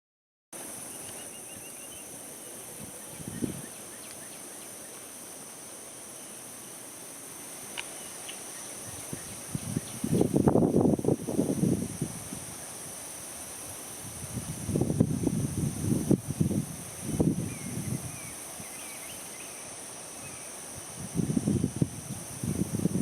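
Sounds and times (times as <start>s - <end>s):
high-pitched insect drone: 0.7s - 23.0s
small bird chirping: 0.9s - 2.1s.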